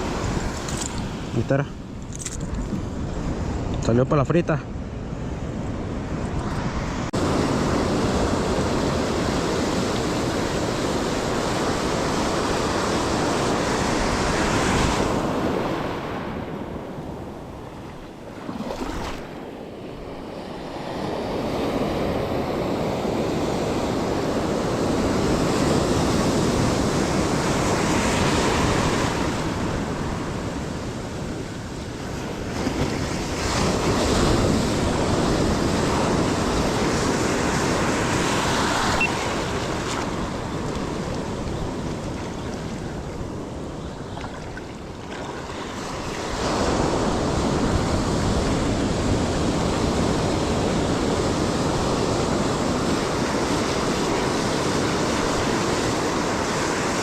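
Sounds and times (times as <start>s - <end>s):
ocean surf breaking on a beach: 0.0s - 2.0s, 2.8s - 57.0s.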